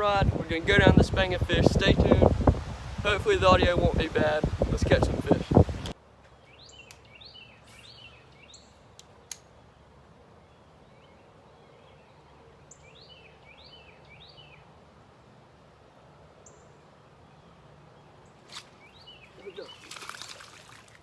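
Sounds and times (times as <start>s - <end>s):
faint outdoor background noise: 0.0s - 21.0s
birds chirping: 4.8s - 15.1s, 16.2s - 21.0s.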